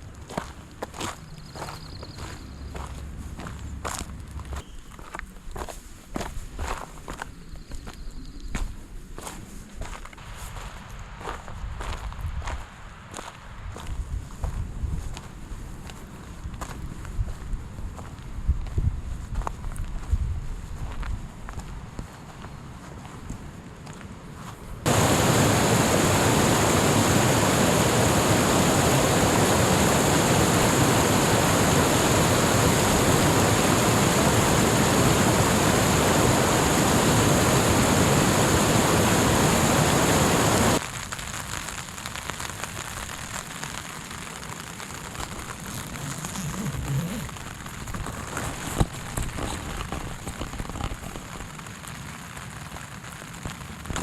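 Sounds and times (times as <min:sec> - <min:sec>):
rain patter: 0:24.9 - 0:54.0
rush of falling water: 0:24.9 - 0:54.0.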